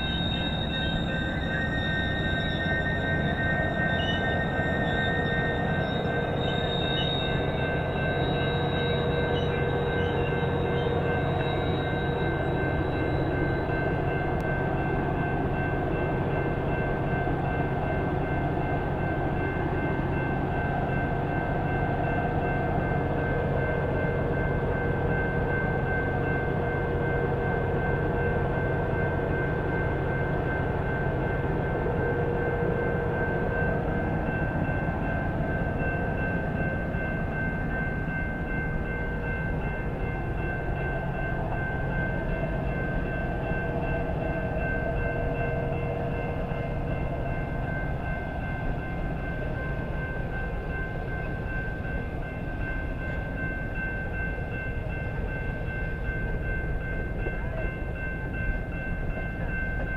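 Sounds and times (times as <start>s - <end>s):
high ringing tones: 0.0s - 27.3s
train rumbling: 0.0s - 59.9s.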